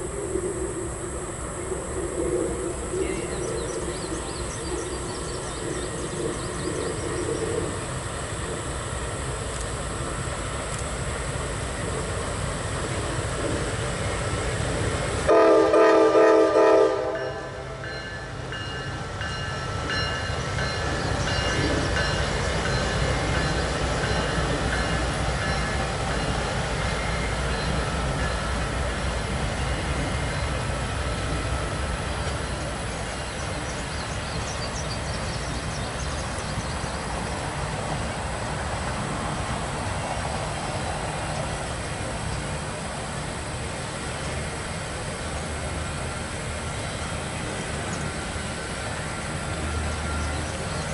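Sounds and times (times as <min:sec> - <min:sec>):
freight train rumbling over bridge: 0:00.0 - 0:50.9
locomotive horn chord blasts: 0:15.3 - 0:17.8.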